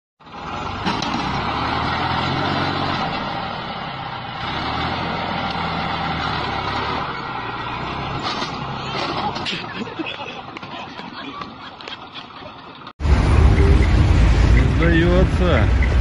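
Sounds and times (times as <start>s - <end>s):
heavy vehicle engine running: 0.2s - 9.8s, 12.8s - 16.0s.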